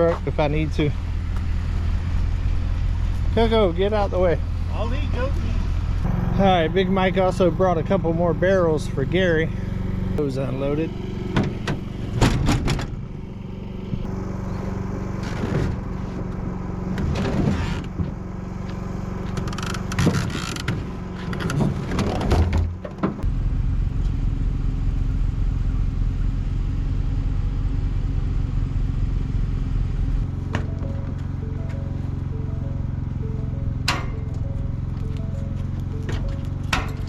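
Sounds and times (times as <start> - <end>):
vehicle engine running: 0.0 - 37.0
metal clanks and creaks: 33.8 - 37.0.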